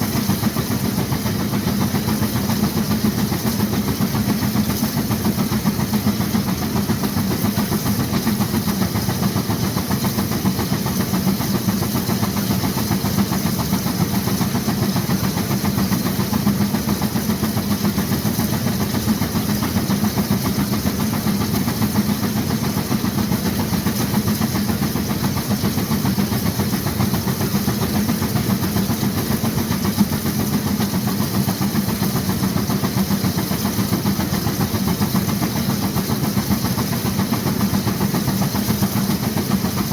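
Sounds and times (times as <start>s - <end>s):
steam engine exhaust beat: 0.0s - 39.9s.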